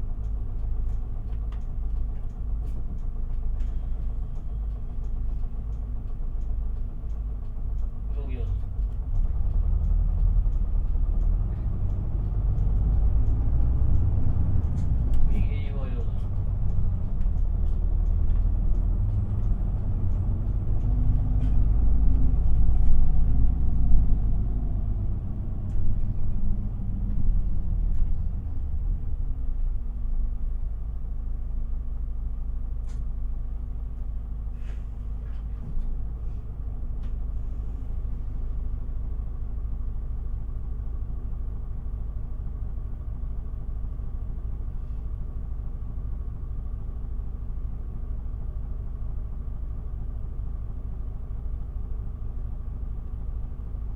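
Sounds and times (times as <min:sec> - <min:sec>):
bus diesel engine: 0:00.0 - 0:53.9
light rattles and clicks: 0:00.1 - 0:28.8, 0:32.7 - 0:38.1.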